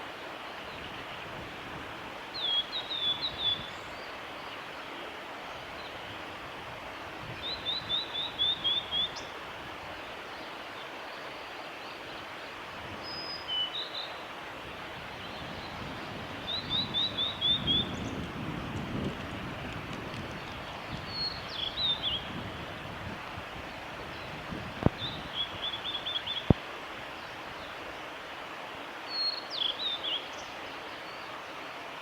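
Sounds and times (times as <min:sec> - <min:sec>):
background hiss: 0:00.0 - 0:32.0
flycatcher singing: 0:16.4 - 0:18.2, 0:20.4 - 0:22.3.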